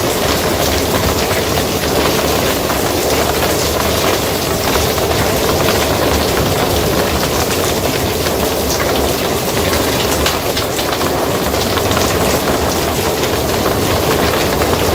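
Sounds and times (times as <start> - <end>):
rain on a roof: 0.0 - 14.9.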